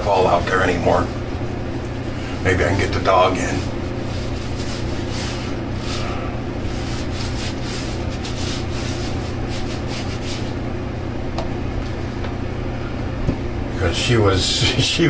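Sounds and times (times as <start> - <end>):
low steady hum: 0.0 - 15.0
quick rubbing strokes: 3.5 - 10.6.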